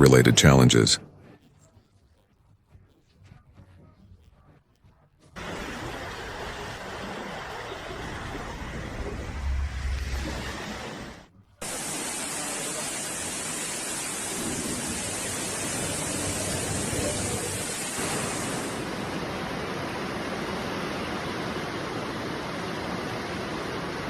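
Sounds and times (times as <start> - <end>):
heavy water rushing: 5.4 - 24.0.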